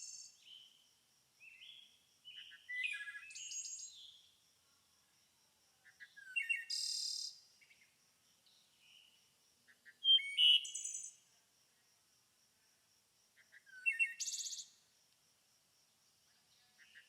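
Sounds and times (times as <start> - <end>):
songbirds chirping and singing: 1.4 - 4.2, 5.9 - 7.3, 8.4 - 11.1, 13.5 - 14.6, 16.5 - 17.0.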